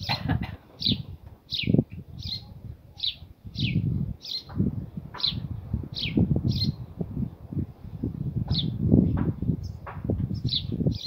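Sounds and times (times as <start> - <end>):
small bird chirping: 0.8 - 4.6, 5.2 - 7.0, 9.4 - 11.0.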